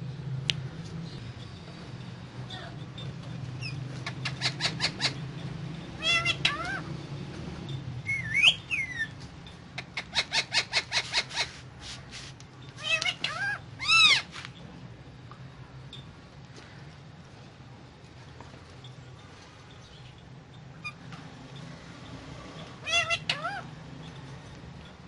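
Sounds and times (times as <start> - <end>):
parrot chirping: 3.0 - 7.0, 8.0 - 9.2, 9.8 - 11.7, 12.8 - 14.3, 20.8 - 21.1, 22.8 - 24.2
loud parrot squawk: 4.0 - 5.2, 6.0 - 6.9, 10.0 - 11.6, 12.8 - 14.3, 22.8 - 23.7
parrot gliding whistles: 8.0 - 9.1.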